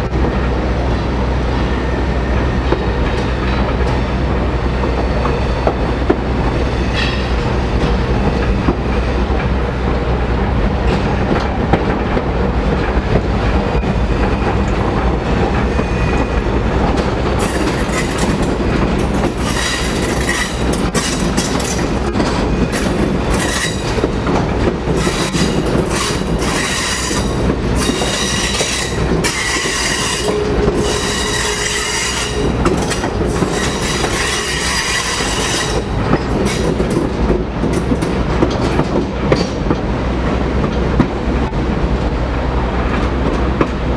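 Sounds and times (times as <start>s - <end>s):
train rumbling on track: 0.0s - 43.9s
train wheels squealing: 27.8s - 36.7s.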